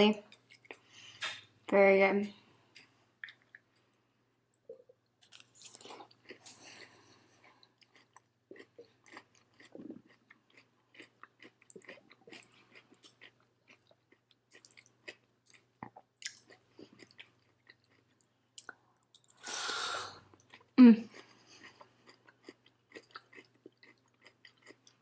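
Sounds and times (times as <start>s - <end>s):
wet chewing mouth clicks and smacks: 2.8s - 3.7s, 7.4s - 19.4s.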